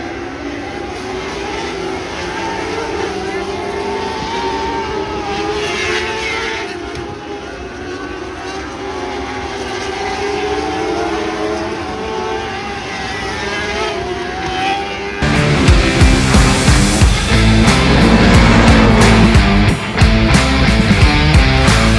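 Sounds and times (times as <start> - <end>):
racing car engines revving: 0.0 - 21.9
loud music: 15.2 - 21.9.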